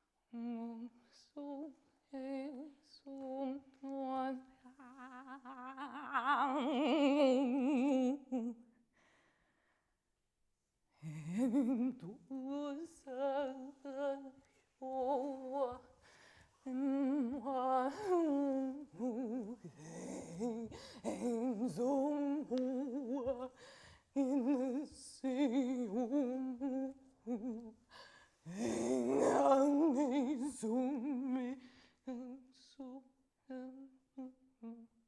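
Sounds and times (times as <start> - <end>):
woman singing wordless notes: 0.3 - 8.6, 11.0 - 16.0, 16.6 - 34.9.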